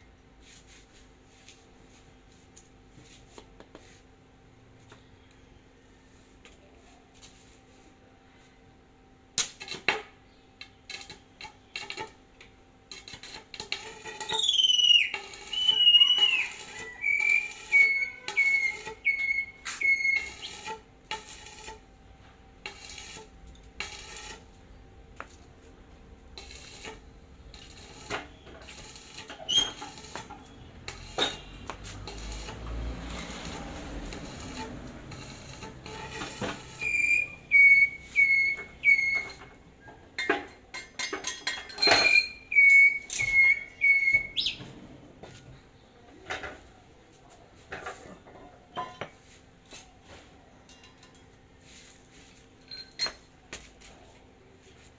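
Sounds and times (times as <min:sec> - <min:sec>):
high whistling squeal: 0:14.2 - 0:20.7, 0:29.0 - 0:30.1, 0:34.2 - 0:39.4, 0:41.9 - 0:44.6
metal tools clicking and knocking: 0:39.1 - 0:43.4, 0:50.6 - 0:51.4.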